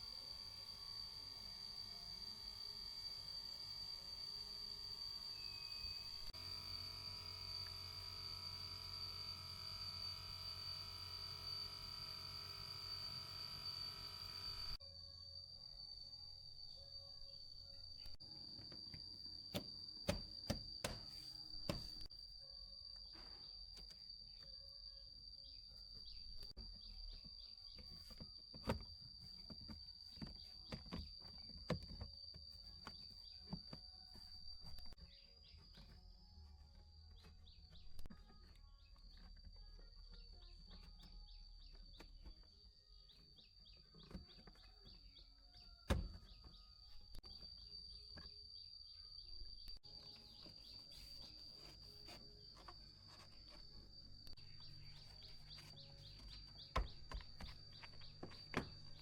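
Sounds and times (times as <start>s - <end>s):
high-pitched whine: 0.0s - 14.8s.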